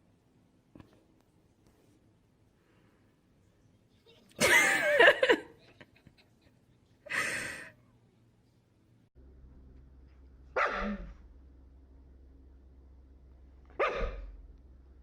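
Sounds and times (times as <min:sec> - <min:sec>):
dog barking: 0:10.6 - 0:11.2, 0:13.7 - 0:14.4.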